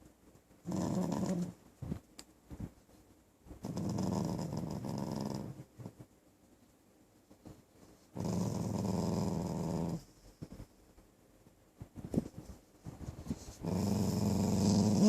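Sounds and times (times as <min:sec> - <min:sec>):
dog growling: 0:00.6 - 0:01.6, 0:03.6 - 0:05.7, 0:08.1 - 0:10.1, 0:13.6 - 0:15.0.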